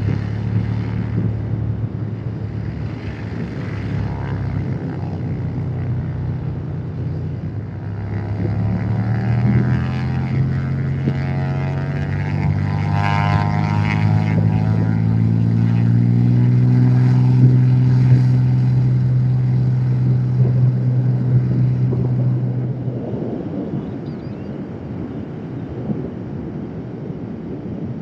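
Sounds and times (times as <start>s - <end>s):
propeller plane engine droning: 0.0s - 28.0s.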